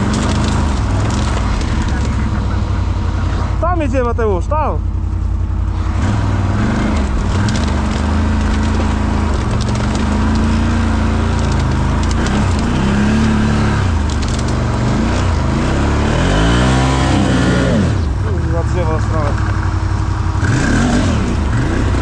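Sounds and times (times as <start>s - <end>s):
wood and brush cracking: 0.0s - 2.4s, 6.6s - 15.6s
quad engine revving: 0.0s - 22.0s.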